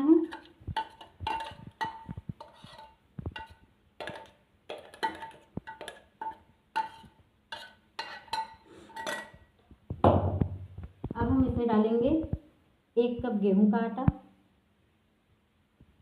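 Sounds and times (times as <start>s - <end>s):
spoon knocking inside metal jar: 0.2s - 9.4s.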